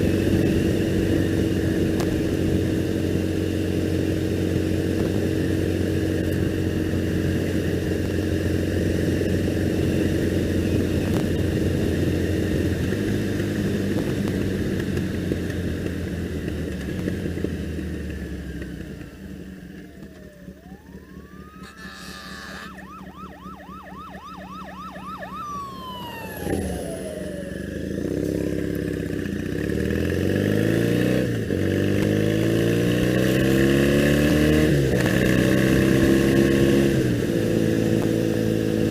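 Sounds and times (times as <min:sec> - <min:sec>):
motorcycle engine cruising: 0:00.0 - 0:38.9
emergency siren wailing: 0:19.8 - 0:28.8.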